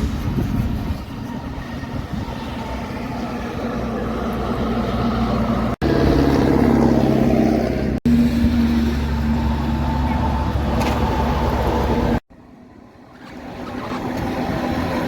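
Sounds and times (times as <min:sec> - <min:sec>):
diesel engine drone: 0:00.0 - 0:15.0
heavy trucks on road: 0:00.0 - 0:15.0.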